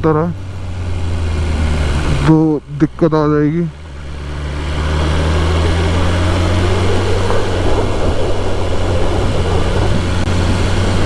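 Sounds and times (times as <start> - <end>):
motorcycle engine running: 0.0 - 11.0
wind rushing over microphone: 3.7 - 11.0.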